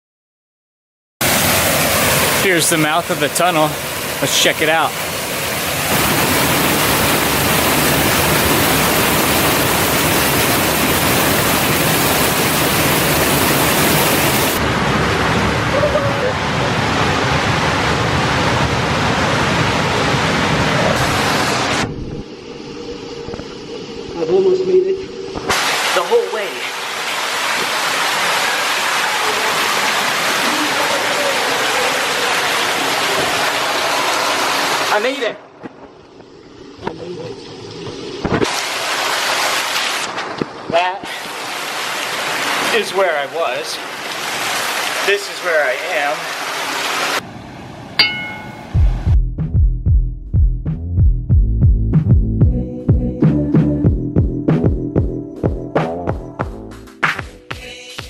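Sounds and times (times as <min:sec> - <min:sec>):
loud rush of flowing water: 0:01.2 - 0:22.6, 0:23.9 - 0:35.3, 0:36.6 - 0:48.6.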